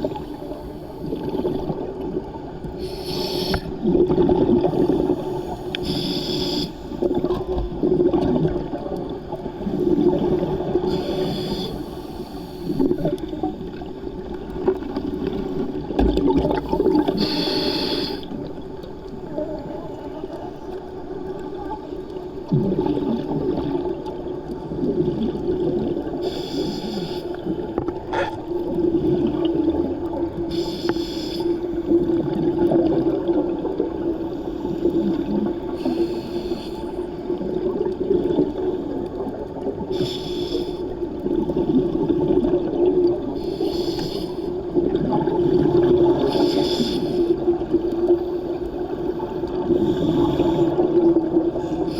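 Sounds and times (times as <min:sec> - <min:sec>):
regulator inhalation hiss: 0:02.8 - 0:03.7, 0:05.1 - 0:06.9, 0:10.9 - 0:12.8, 0:17.2 - 0:18.4, 0:26.2 - 0:27.4, 0:30.5 - 0:31.6, 0:35.8 - 0:37.0, 0:40.0 - 0:40.8, 0:43.4 - 0:44.5, 0:46.3 - 0:47.3
bubbling exhaled air: 0:24.8 - 0:36.6.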